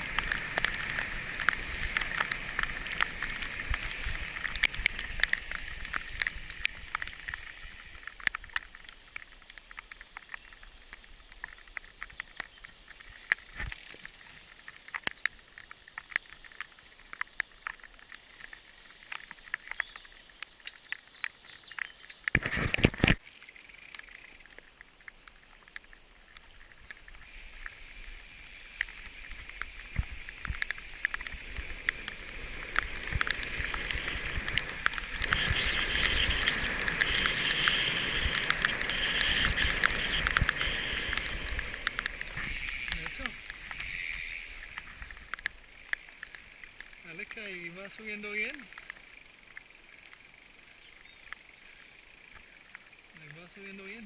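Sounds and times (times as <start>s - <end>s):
bicycle tyres crunching on dirt: 0.0s - 54.0s.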